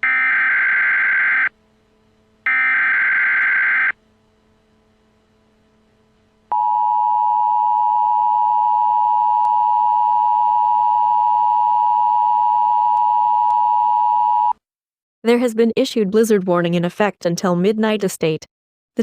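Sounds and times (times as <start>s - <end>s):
harsh two-pitch alert tone: 2.5s - 4.0s.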